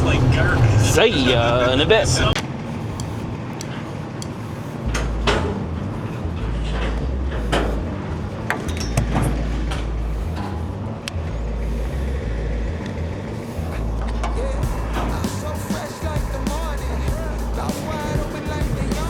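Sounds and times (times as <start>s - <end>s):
truck engine uneven rumble: 0.0s - 19.0s
knocks and clanks: 4.8s - 5.9s, 8.4s - 10.7s.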